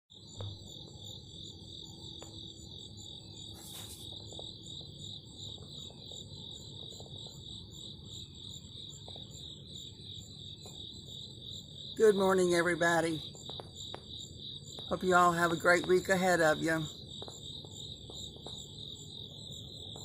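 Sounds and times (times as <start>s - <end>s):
brief hiss: 3.5s - 4.1s.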